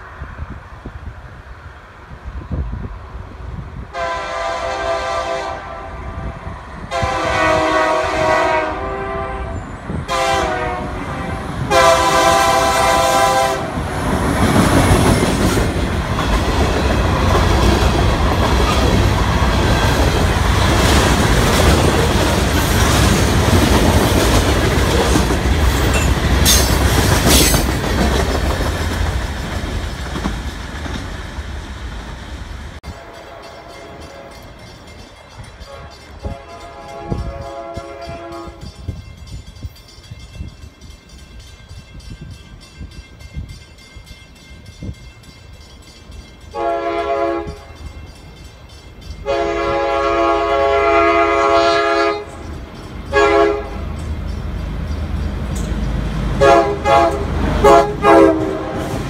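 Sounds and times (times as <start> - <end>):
train wheels rumbling on rails: 0.0 - 59.0
train horn blasts: 3.9 - 13.9, 32.8 - 34.6, 35.6 - 39.0, 46.5 - 47.9, 49.2 - 52.4, 53.1 - 53.9, 56.3 - 59.0.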